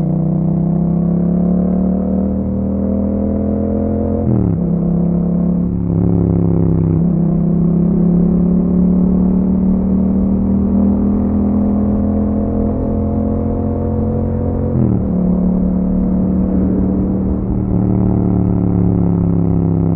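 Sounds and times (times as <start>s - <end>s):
motorcycle engine running: 4.5s - 19.9s.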